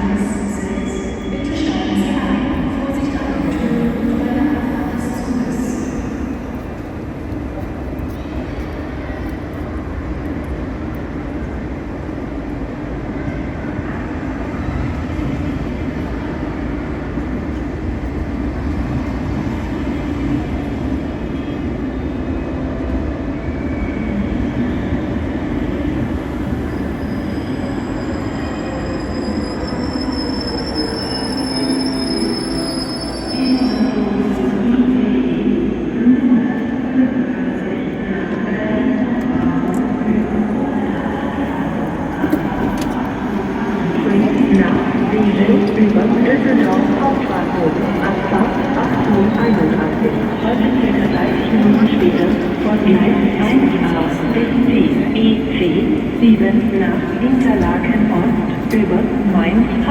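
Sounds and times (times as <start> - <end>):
train rumbling slowly: 0.0 - 59.9
high-pitched wheel squeal: 27.0 - 34.0.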